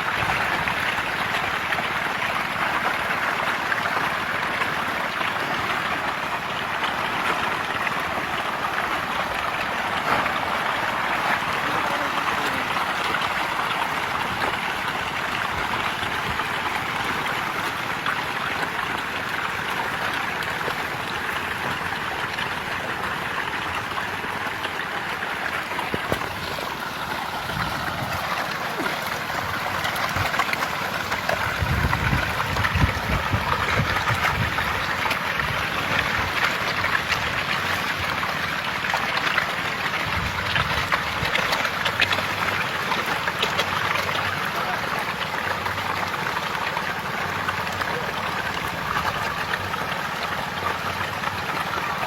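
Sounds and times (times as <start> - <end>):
fish thrashing and splashing water: 0.0 - 52.0
low rumbles: 24.6 - 39.0.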